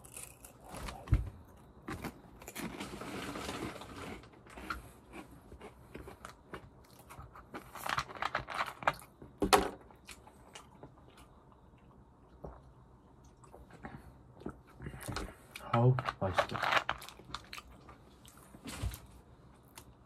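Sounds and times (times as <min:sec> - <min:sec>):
crunchy snack chewing: 0:00.0 - 0:01.1, 0:14.4 - 0:19.1.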